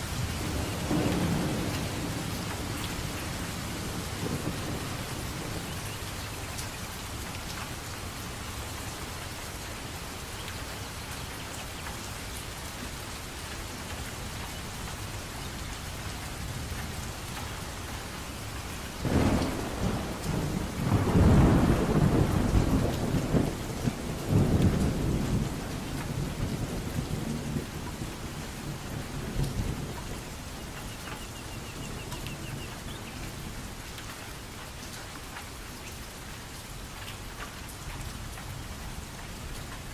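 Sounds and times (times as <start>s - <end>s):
steady rainfall: 0.0s - 39.9s
thunder cracking and rumbling: 0.1s - 6.0s, 18.8s - 30.2s.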